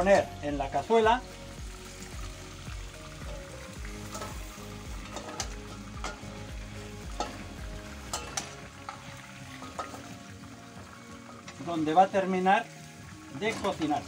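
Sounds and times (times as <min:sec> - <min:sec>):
meat sizzling in oil: 0:00.0 - 0:14.0
spoon knocking against pan: 0:05.1 - 0:06.4.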